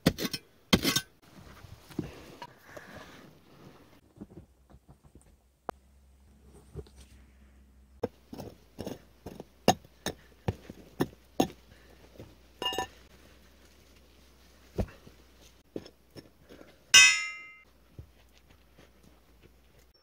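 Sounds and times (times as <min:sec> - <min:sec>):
short ringing clink: 0:12.6 - 0:12.9, 0:17.0 - 0:17.6
loud metallic clang: 0:17.0 - 0:17.6.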